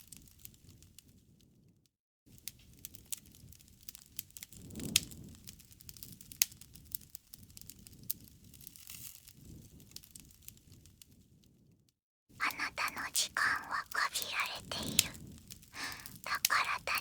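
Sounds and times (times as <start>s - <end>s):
wood fire crackling: 2.8s - 9.0s, 12.8s - 17.0s.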